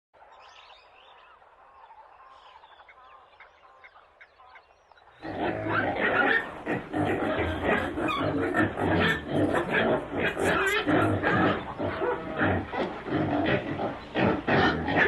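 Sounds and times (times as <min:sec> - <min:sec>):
loud dense animal noise: 0:00.2 - 0:15.0.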